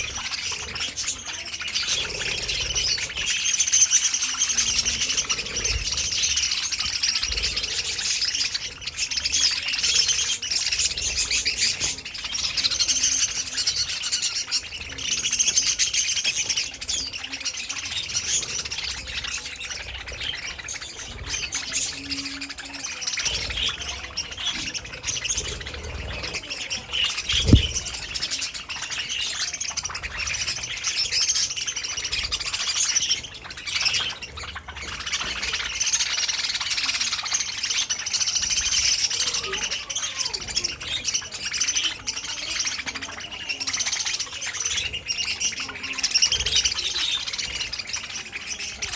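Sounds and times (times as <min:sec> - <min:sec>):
budgerigars chirping and chattering: 0:00.0 - 0:48.9
sharp thump: 0:27.3 - 0:27.8.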